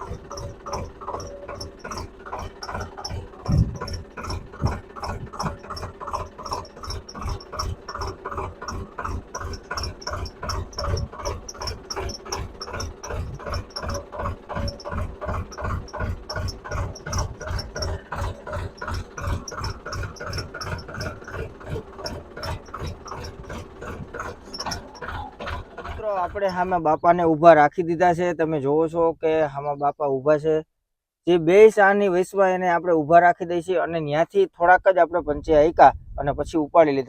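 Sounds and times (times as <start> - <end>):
tractor engine chugging: 0.0 - 29.9.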